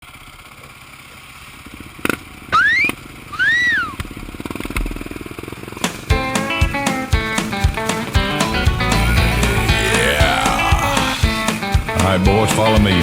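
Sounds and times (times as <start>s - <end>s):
guitar music: 6.2s - 11.4s.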